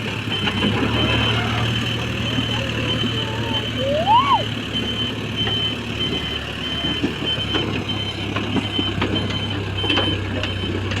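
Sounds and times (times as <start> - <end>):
diesel engine running: 0.0 - 11.0
warning beeper beeping: 2.3 - 10.8.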